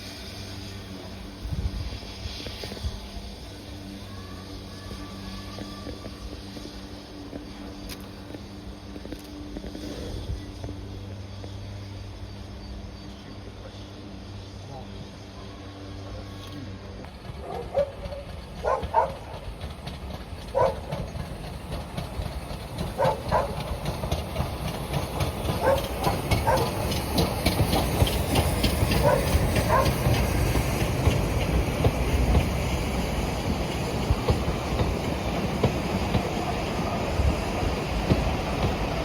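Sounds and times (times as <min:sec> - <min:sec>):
train rumble: 0:00.0 - 0:39.0
train wheels knocking over rail joints: 0:17.1 - 0:39.0.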